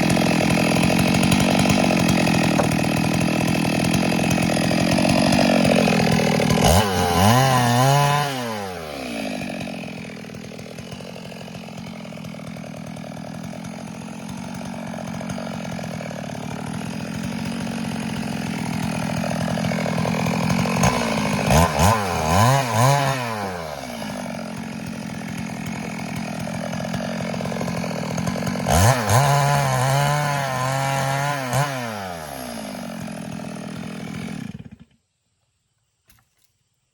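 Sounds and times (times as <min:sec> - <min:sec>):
chainsaw engine revving: 0:00.0 - 0:35.0.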